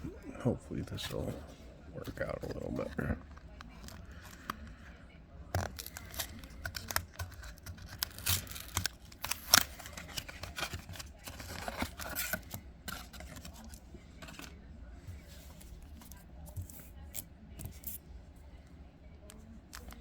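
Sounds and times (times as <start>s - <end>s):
cards being handled: 0.8s - 4.8s, 5.5s - 18.1s, 19.4s - 20.0s
foil wrapper crinkling and tearing: 5.6s - 13.7s.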